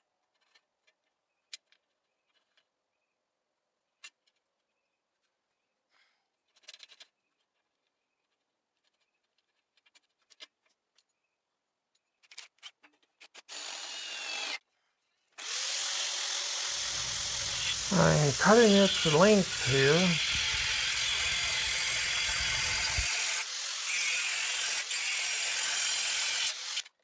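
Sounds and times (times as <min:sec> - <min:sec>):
power tool spinning: 0:15.4 - 0:27.0.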